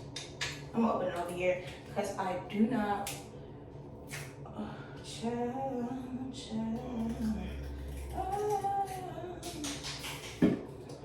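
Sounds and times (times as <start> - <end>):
woman singing softly: 4.5 - 9.8.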